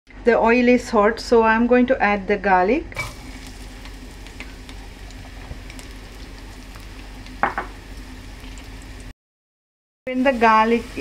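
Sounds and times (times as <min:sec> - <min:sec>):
garlic sizzling in oil: 0:03.0 - 0:09.1, 0:10.1 - 0:11.0
small crackles: 0:03.3 - 0:07.4.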